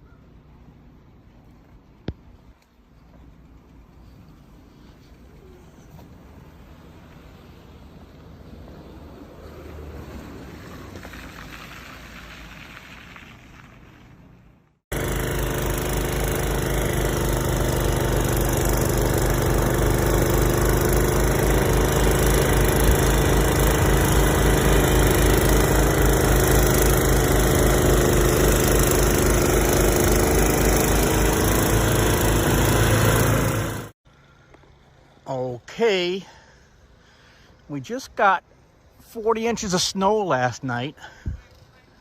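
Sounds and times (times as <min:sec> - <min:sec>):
loud engine running: 0:14.9 - 0:34.0.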